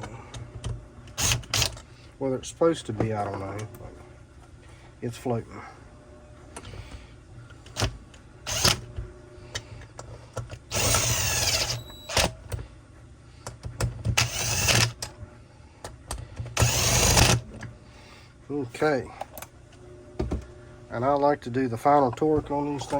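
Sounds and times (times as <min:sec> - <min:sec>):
power driver running screws: 0:01.2 - 0:01.8, 0:08.5 - 0:08.9, 0:10.6 - 0:12.3, 0:14.1 - 0:15.1, 0:16.6 - 0:17.4.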